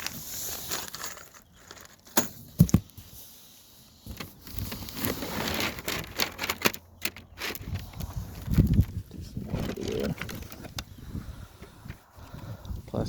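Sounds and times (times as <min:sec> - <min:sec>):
packaging rustling: 0:00.0 - 0:02.2, 0:04.2 - 0:10.9.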